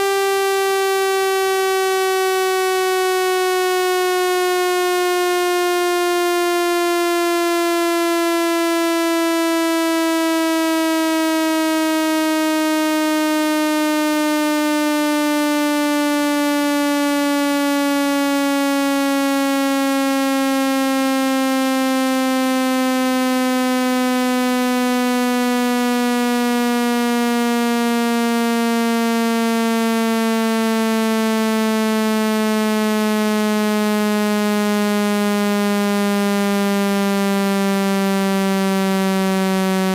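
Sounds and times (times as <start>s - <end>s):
buzzy test tone gliding down: 22.3s - 39.9s.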